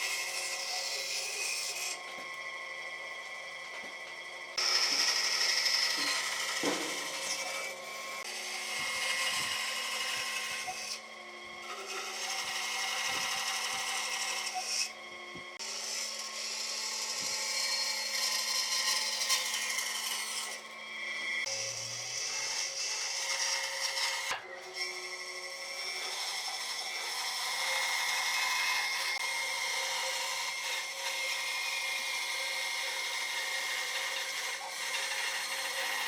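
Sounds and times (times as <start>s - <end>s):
power tool cutting wood: 0.0s - 36.0s.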